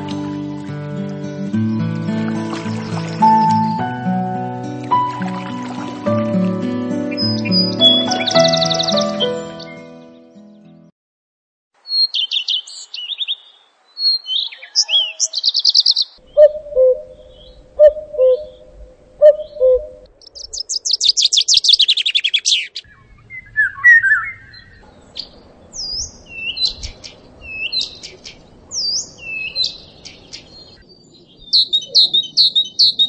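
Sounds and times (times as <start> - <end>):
high whistled bird notes: 2.8 - 3.9, 7.1 - 9.9, 19.2 - 24.8
high bird chirps and trills: 7.1 - 10.2, 11.9 - 33.0.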